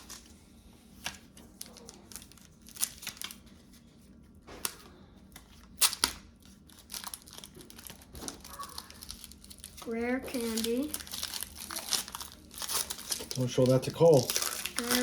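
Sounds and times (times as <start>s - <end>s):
foil wrapper tearing and crinkling: 1.6s - 3.5s, 5.6s - 15.0s.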